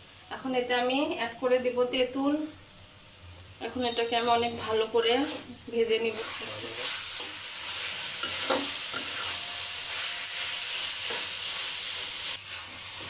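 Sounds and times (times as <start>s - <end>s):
food sizzling in oil: 0.0s - 13.0s
metal spatula scraping a pan: 5.0s - 5.5s, 6.1s - 13.0s.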